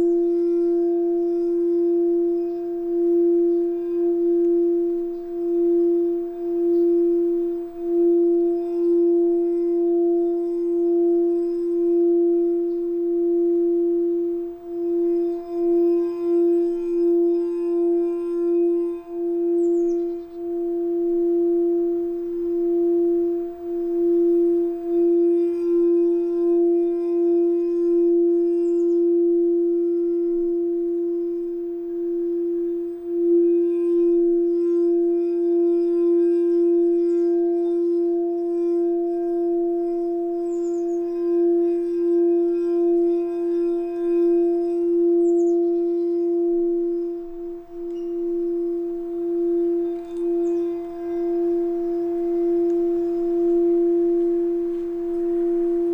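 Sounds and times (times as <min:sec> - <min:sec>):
singing bowl tone: 0:00.0 - 0:55.9.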